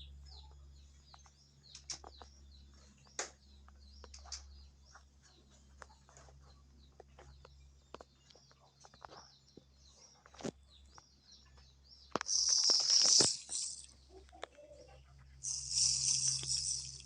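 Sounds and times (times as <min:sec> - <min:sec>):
small birds chirping: 0:00.0 - 0:17.0
dense high crackling: 0:12.2 - 0:13.9, 0:15.4 - 0:17.0.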